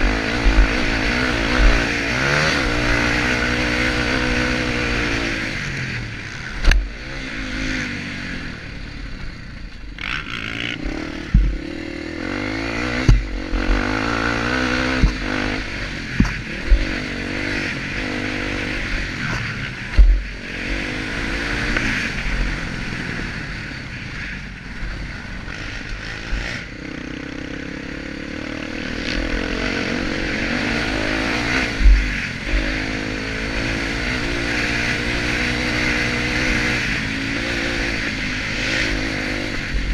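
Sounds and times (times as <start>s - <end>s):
dirt bike engine revving: 0.0s - 39.9s
sharp thumps: 10.1s - 11.8s, 12.8s - 13.8s, 14.8s - 15.5s, 16.1s - 17.0s, 19.2s - 20.3s.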